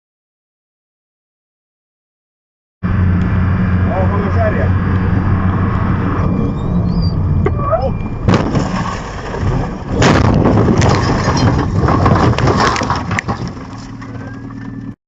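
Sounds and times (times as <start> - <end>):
sharp bang: 8.2 - 11.6
clattering crunching noise: 8.2 - 14.9.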